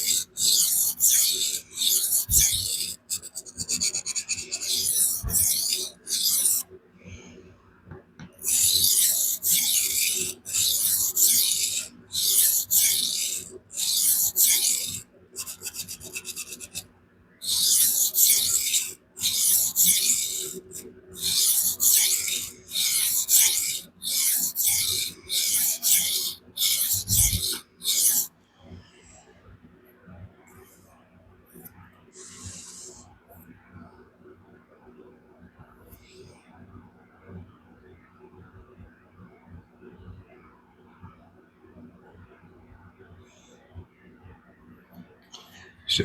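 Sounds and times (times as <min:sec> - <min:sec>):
knife rasping on sharpening stone: 0:00.0 - 0:06.7, 0:08.4 - 0:28.3.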